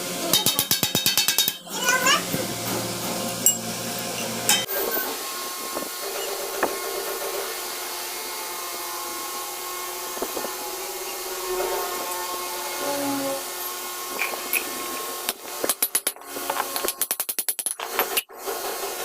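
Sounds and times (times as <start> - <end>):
machine running with hiss: 1.7 - 15.6.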